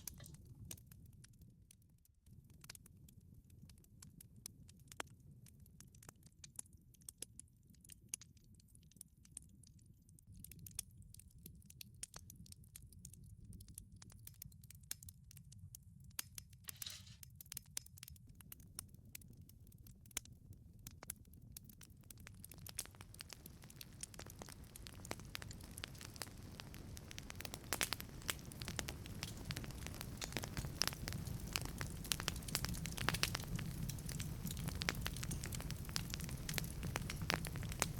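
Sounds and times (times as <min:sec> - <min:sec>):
low rumble of flames: 0:00.0 - 0:37.9
wood fire crackling and popping: 0:00.0 - 0:37.9.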